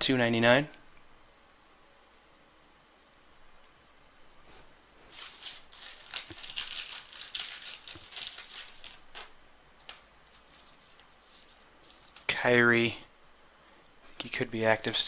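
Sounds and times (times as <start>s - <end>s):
trading cards rustling: 5.1s - 12.4s.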